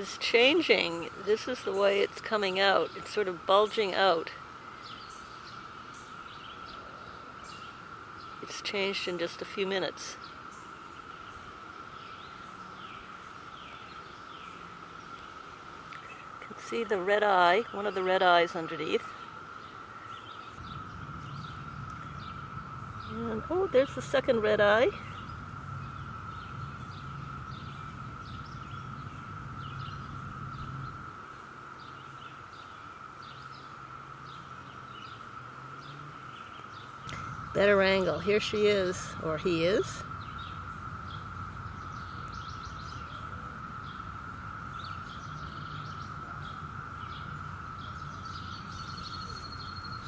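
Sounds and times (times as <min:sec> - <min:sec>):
cicadas droning: 0:00.0 - 0:50.0
small birds chirping: 0:00.0 - 0:50.0
low hum: 0:10.2 - 0:50.0.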